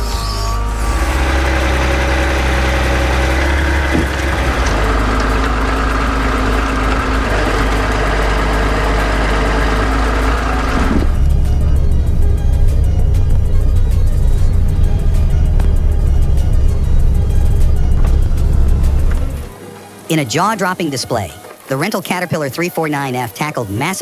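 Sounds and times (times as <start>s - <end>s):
truck diesel engine running: 0.1s - 21.5s.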